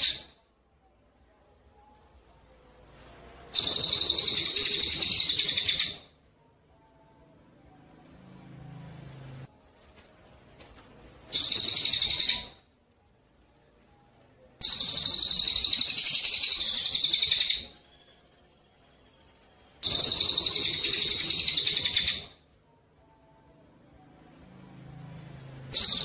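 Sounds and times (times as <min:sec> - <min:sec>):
sparrow buzzing trill: 0:03.5 - 0:06.1, 0:10.4 - 0:12.6, 0:14.6 - 0:22.4, 0:25.7 - 0:26.0.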